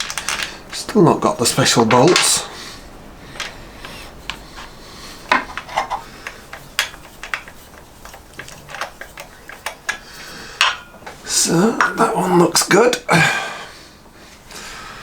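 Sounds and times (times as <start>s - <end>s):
metal tools clinking: 0.0s - 11.2s.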